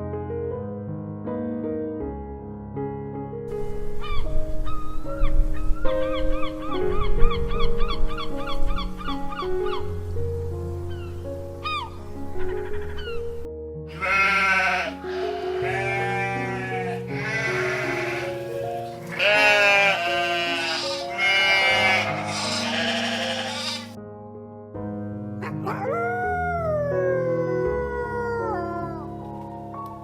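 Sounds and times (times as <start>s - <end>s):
background music: 0.0s - 30.0s
animal bleating: 13.9s - 24.0s.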